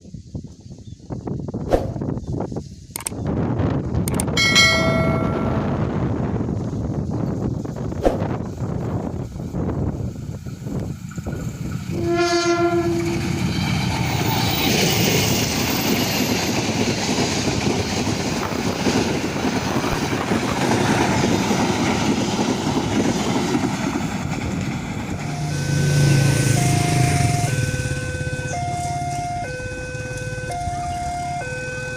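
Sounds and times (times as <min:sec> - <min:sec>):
train wheels rushing on rails: 0:04.1 - 0:31.6
train horn blast: 0:11.9 - 0:13.4, 0:25.2 - 0:30.6.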